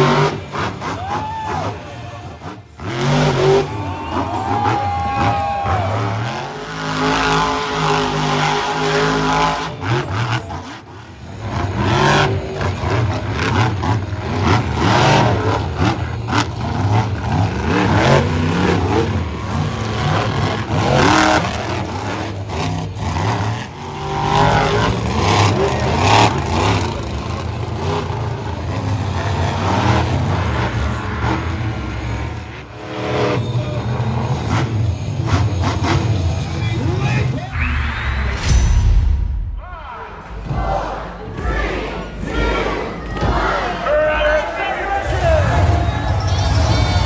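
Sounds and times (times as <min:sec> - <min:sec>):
monster truck engine revving: 0:00.0 - 0:47.0.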